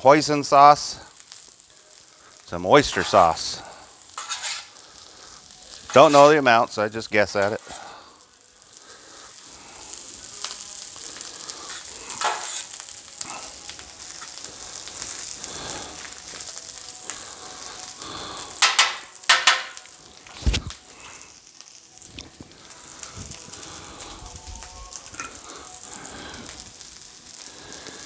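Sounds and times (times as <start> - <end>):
fried rice sizzling on a griddle: 0.0 - 28.0
spatula scraping griddle: 2.6 - 8.0, 9.2 - 16.4, 17.1 - 20.7.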